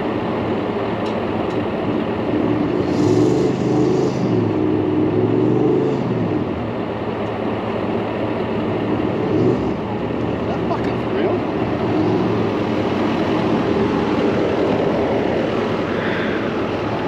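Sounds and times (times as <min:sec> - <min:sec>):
engine revving hard: 0:02.3 - 0:06.5, 0:09.0 - 0:10.2, 0:11.4 - 0:16.7.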